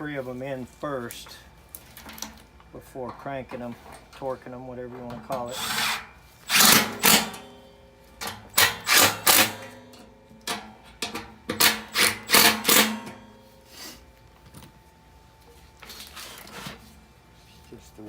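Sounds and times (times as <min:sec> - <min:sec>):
cordless drill running in bursts: 0:05.5 - 0:07.3, 0:08.6 - 0:09.5, 0:11.9 - 0:12.8.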